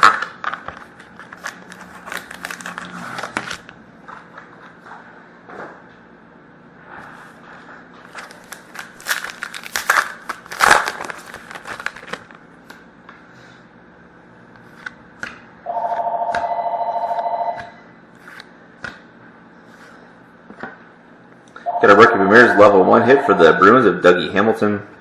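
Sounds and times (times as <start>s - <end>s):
wrapper tearing and crinkling: 1.3s - 3.7s, 8.1s - 12.4s
telephone ringing: 15.6s - 17.7s, 21.7s - 24.0s.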